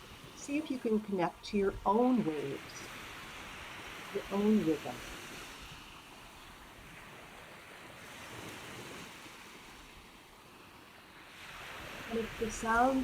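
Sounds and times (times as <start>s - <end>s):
faint ocean surf: 0.0s - 13.0s.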